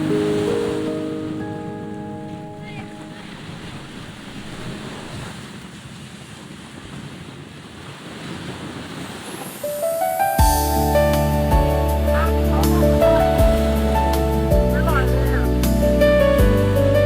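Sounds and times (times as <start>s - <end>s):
soft music with sustained tones: 0.0s - 4.8s, 9.6s - 17.0s
wind buffeting microphone: 0.0s - 9.7s, 10.4s - 17.0s
sea waves washing: 0.0s - 17.0s.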